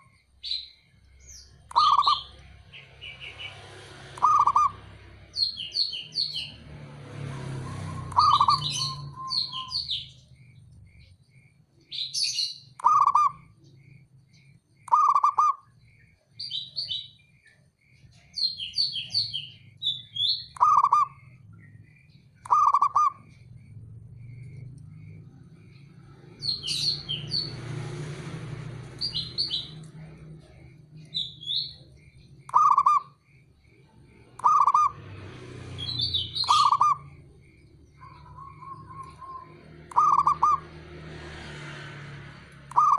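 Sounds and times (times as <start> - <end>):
small birds chirping: 0.0 - 42.9
dove cooing: 4.2 - 4.8, 7.7 - 9.7, 12.8 - 13.5, 14.9 - 15.6, 22.4 - 25.2, 32.5 - 33.2, 36.3 - 40.8.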